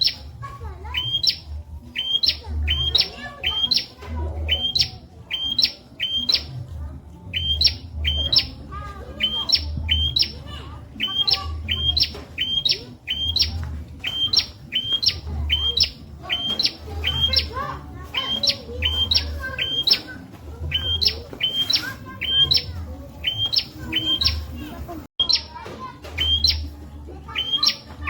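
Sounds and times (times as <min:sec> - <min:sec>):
bird chirping sharp rising notes: 0:00.0 - 0:06.6, 0:07.2 - 0:25.6, 0:26.2 - 0:27.9.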